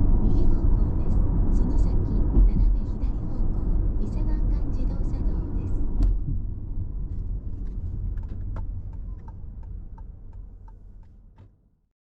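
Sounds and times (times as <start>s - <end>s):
car road rumble: 0.0s - 11.8s
turn signal ticking: 7.6s - 11.5s.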